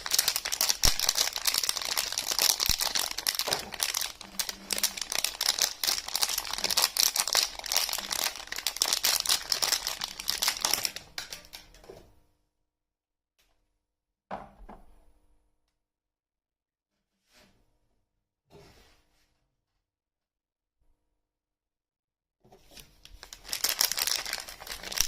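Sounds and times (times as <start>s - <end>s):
packaging crinkling and tearing: 0.0s - 11.8s, 22.7s - 25.0s.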